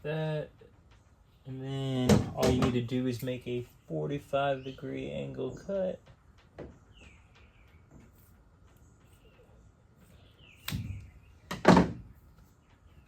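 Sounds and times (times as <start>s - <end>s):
faint bird chirps: 6.6s - 13.0s.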